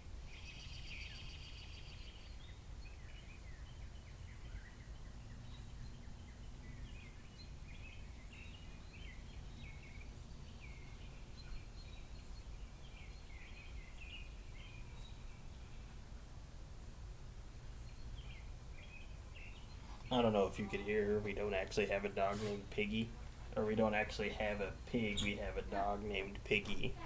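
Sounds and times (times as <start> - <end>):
small birds chirping: 0.0 - 27.0
low outdoor rumble: 12.9 - 27.0.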